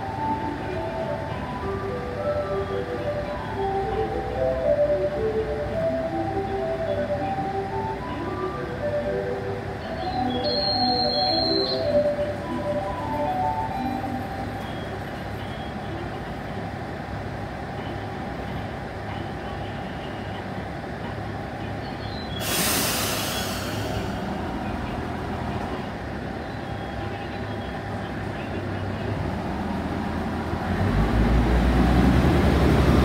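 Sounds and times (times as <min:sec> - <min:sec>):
diesel railcar idling hum: 0:00.0 - 0:33.0
compressed air hiss: 0:22.4 - 0:24.1.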